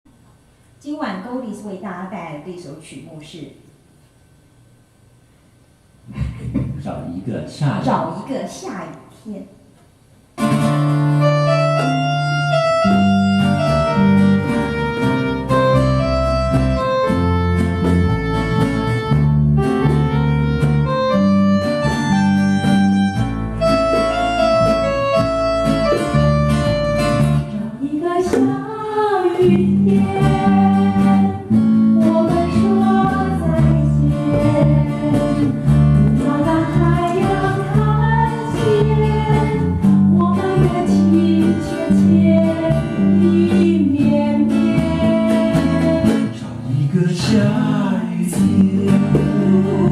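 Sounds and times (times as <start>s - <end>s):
plucked guitar: 10.4s - 28.7s, 29.4s - 49.9s
repeating bass line: 10.8s - 27.6s
gliding melody line: 11.2s - 27.6s.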